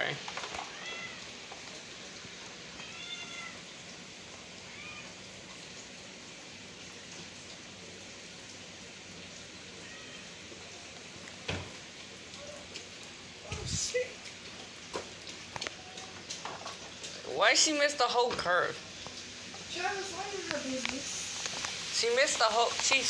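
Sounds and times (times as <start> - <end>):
rain hissing: 0.0 - 23.0
cat meowing: 0.5 - 1.4, 2.7 - 3.7, 4.6 - 5.2, 9.7 - 10.5.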